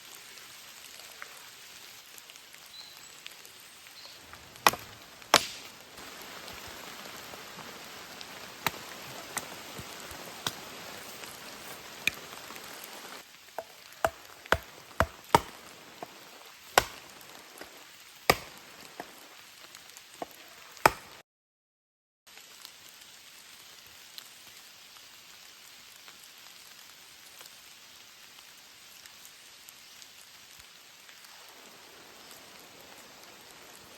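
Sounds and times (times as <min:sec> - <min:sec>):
steady rain: 0:00.0 - 0:21.2, 0:22.3 - 0:33.9
sharp knocks: 0:04.6 - 0:05.7, 0:18.3 - 0:18.5.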